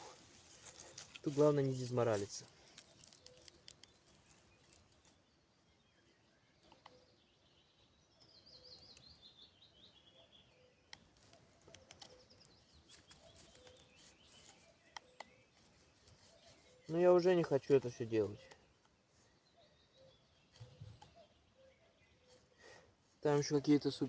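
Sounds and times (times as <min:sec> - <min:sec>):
faint small clicks: 0:02.6 - 0:05.1, 0:06.6 - 0:07.0, 0:10.9 - 0:15.4.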